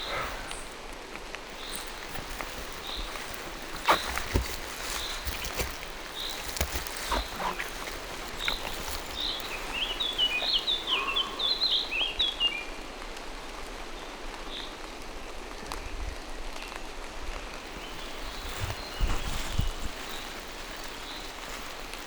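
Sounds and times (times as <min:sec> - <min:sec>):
rain falling through trees: 0:00.0 - 0:22.0
songbird chirping: 0:01.5 - 0:12.8, 0:17.5 - 0:22.0.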